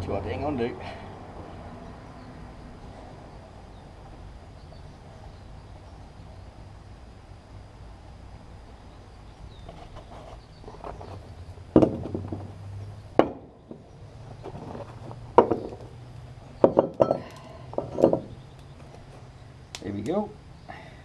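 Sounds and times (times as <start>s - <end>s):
metal mould being struck: 13.2s - 13.6s.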